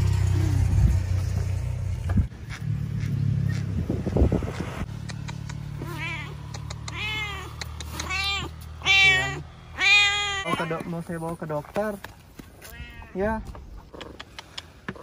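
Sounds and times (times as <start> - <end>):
cat meowing: 5.8 - 10.9, 12.6 - 13.3.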